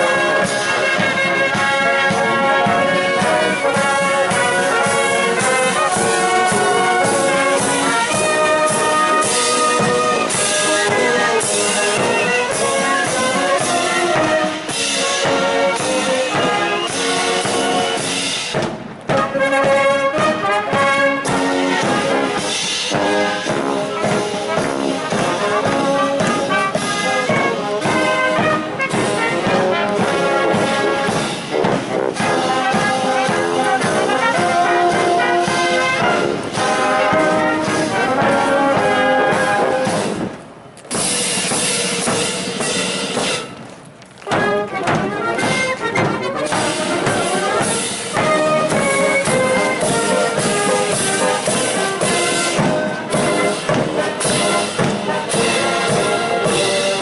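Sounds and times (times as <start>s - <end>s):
brass band playing a march: 0.0s - 57.0s.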